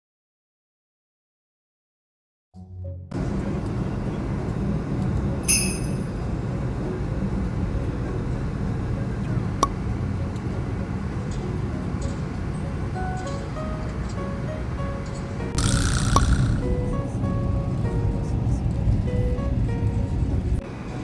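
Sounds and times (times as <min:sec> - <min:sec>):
ringing metallic clink: 0:05.5 - 0:06.2.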